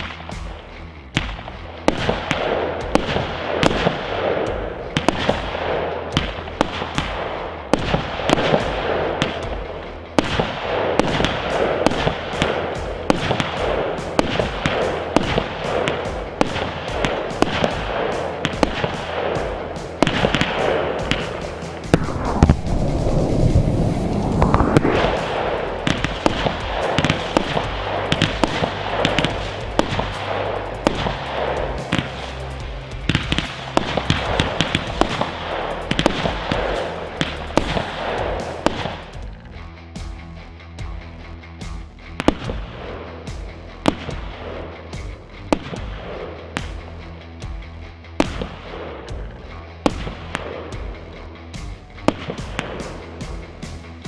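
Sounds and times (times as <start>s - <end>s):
background music: 0.0s - 54.0s
heavy rumble: 0.0s - 54.0s
firework launch and burst bangs: 1.2s - 39.4s, 42.2s - 42.7s, 43.8s - 44.5s, 48.2s - 48.8s, 49.8s - 50.6s, 52.1s - 53.8s.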